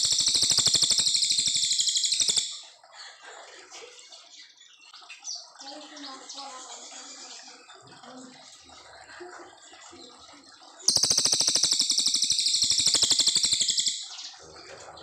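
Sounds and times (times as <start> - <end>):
bird singing fast trill: 0.0 - 2.7, 10.8 - 14.4.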